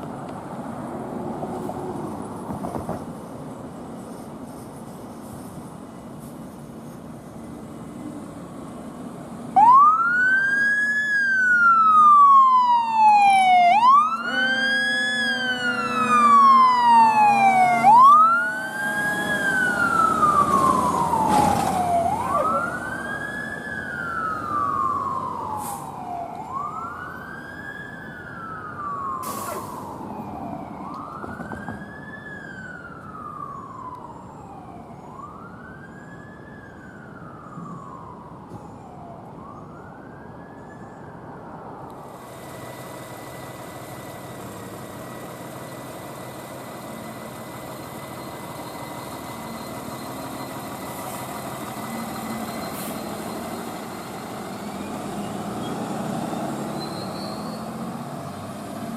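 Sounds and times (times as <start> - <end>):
emergency siren wailing: 9.6 - 42.0, 43.1 - 58.9.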